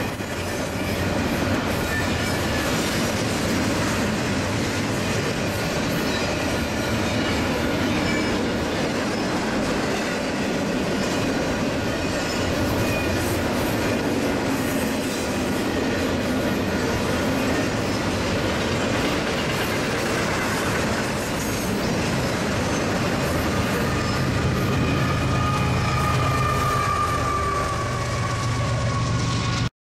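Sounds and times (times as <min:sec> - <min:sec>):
freight train wheels rumbling: 0:00.0 - 0:29.7
high wheel squeal: 0:05.1 - 0:14.0, 0:21.4 - 0:29.7.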